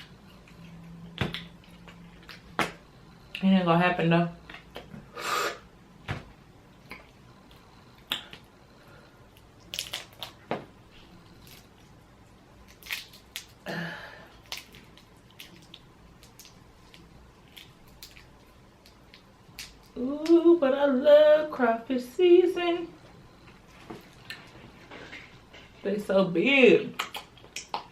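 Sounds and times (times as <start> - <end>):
crawfish shells cracking: 9.4 - 10.7, 11.3 - 20.0.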